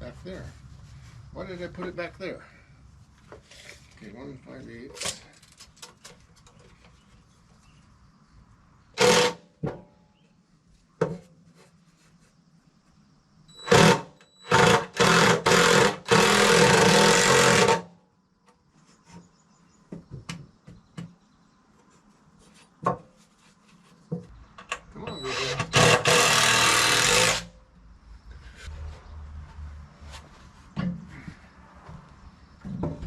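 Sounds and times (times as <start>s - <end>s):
power tool cutting wood: 9.0s - 9.4s, 13.6s - 17.8s, 25.2s - 27.5s.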